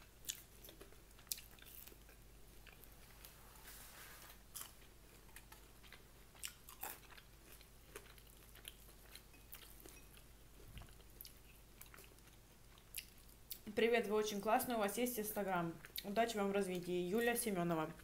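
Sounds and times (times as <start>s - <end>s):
person chewing: 0.0s - 3.5s, 4.2s - 13.7s.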